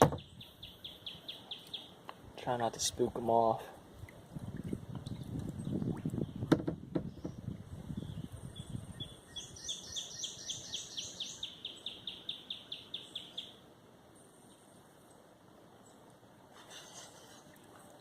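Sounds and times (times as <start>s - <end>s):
songbird chirping: 0.0s - 2.2s, 5.1s - 16.2s.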